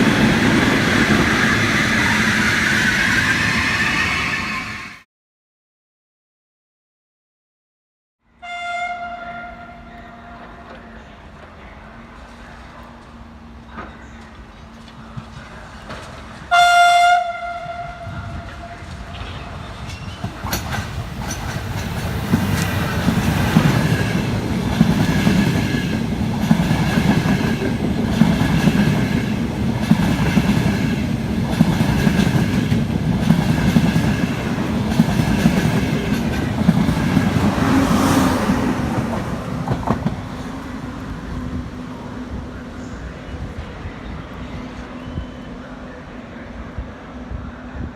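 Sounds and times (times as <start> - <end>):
train passing rumble: 0.0 - 5.0, 8.9 - 47.9
train horn blast: 8.4 - 10.8, 16.5 - 19.6.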